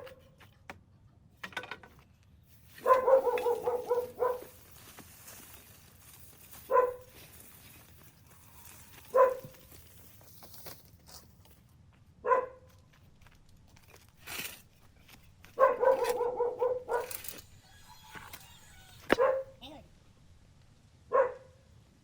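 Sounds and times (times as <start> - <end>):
dog barking: 2.8 - 4.6, 6.7 - 7.1, 9.1 - 9.6, 12.2 - 12.7, 15.6 - 19.6, 21.1 - 21.6.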